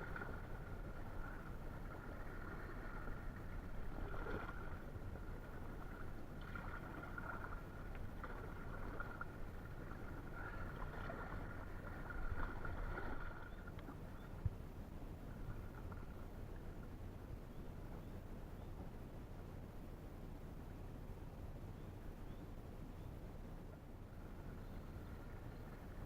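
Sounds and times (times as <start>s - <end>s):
paddle splashing in water: 0.0s - 14.4s.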